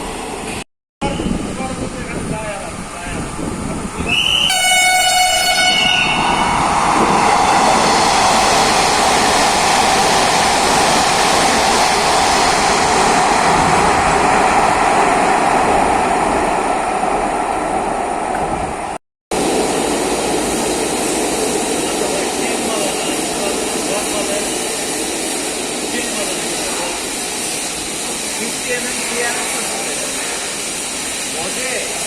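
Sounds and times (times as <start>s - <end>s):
train wheels rushing on rail: 0.0s - 32.0s
train horn: 4.4s - 6.6s.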